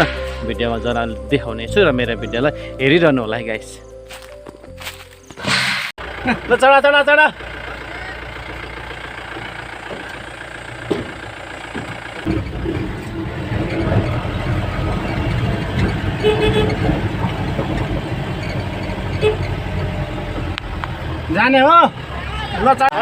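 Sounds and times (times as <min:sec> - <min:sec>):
vehicle engine running: 0:05.8 - 0:23.0.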